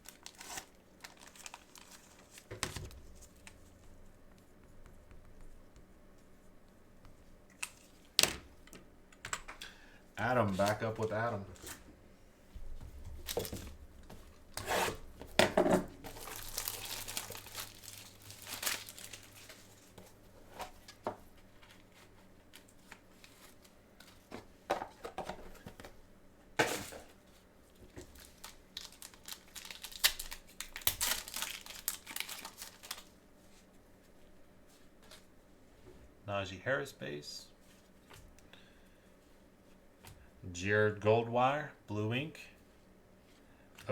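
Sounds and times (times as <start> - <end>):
packaging tearing: 0.0 - 2.5, 16.0 - 19.6, 28.1 - 33.1
plastic wrapping crinkling: 0.0 - 3.8, 13.2 - 13.8, 16.0 - 20.0, 27.9 - 33.7.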